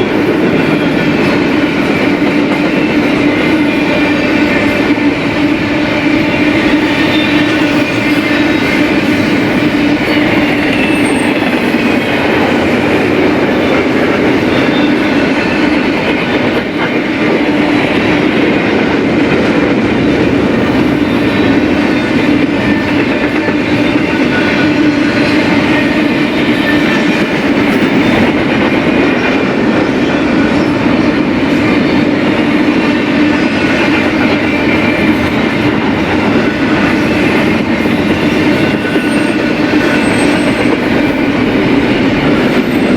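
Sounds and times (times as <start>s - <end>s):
train wheels rumbling on rail: 0.0s - 42.9s
high-pitched wheel squeal: 6.6s - 12.1s, 36.8s - 41.2s.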